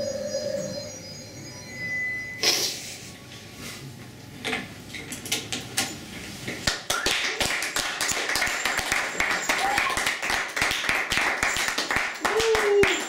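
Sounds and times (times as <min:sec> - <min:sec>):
people clapping: 0:06.6 - 0:13.0.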